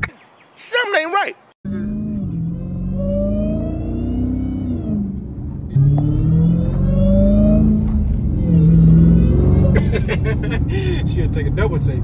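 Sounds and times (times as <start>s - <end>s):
supercharger whine: 1.7s - 9.8s
car engine accelerating hard: 1.7s - 12.0s.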